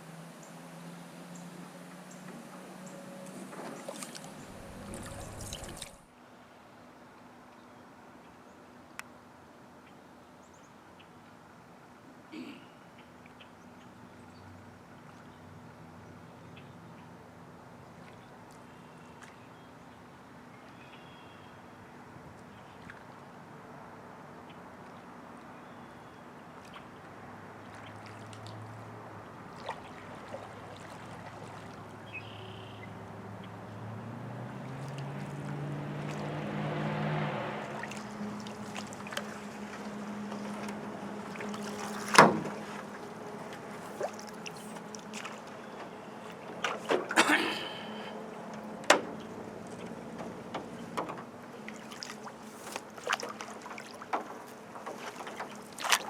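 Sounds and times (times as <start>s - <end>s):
water noise: 0.0s - 6.2s, 21.7s - 56.0s
low hum: 2.6s - 6.1s.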